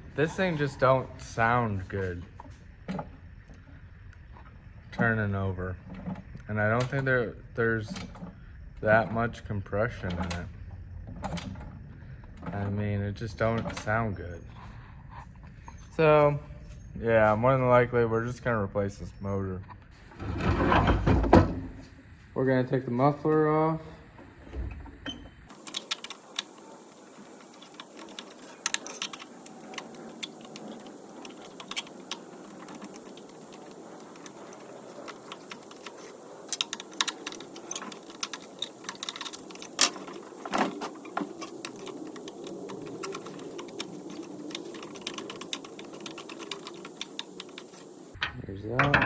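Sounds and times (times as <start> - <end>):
hand tools clicking on metal: 25.5 - 49.0.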